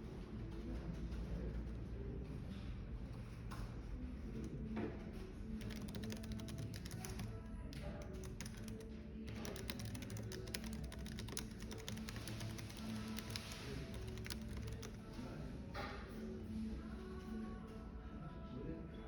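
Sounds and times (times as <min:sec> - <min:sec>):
background music: 0:03.5 - 0:19.0
fast typing on a keyboard: 0:05.5 - 0:15.4.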